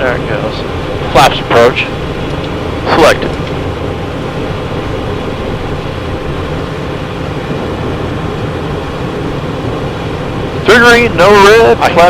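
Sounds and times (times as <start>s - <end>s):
cockpit airflow and engine hum: 0.0s - 12.0s.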